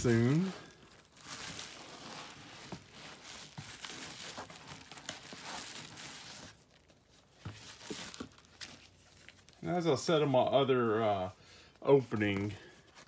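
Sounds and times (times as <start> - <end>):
packaging crinkling: 0.1 - 9.8.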